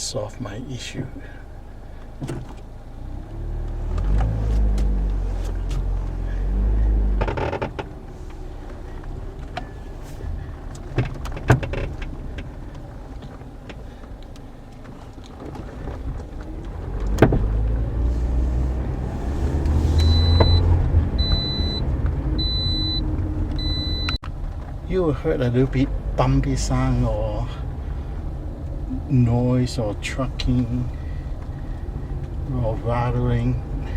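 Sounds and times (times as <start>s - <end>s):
car road and engine rumble: 0.0s - 33.9s
suspension clunking: 0.0s - 33.9s
high beep: 20.0s - 21.8s, 22.4s - 23.0s, 23.6s - 24.2s.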